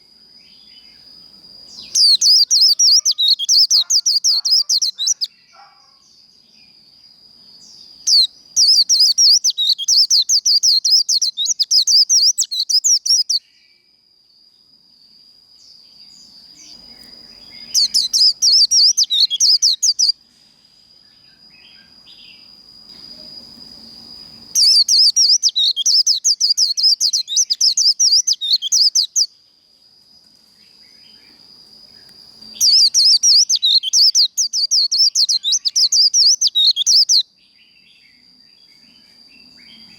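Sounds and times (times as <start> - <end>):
bird warbling song: 1.7 - 6.2, 7.6 - 13.4, 16.1 - 20.2, 24.4 - 29.3, 32.0 - 39.9.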